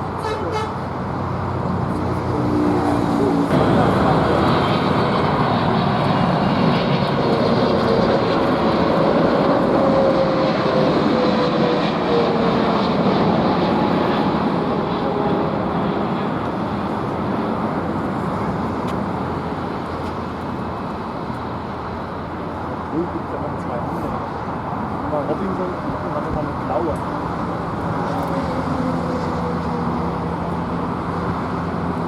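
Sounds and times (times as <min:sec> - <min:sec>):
jet engines passing: 0:00.0 - 0:32.0.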